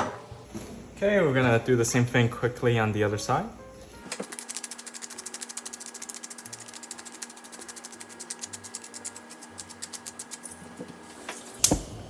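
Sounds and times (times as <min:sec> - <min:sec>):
pepper mill grinding clicks: 0:04.1 - 0:10.6.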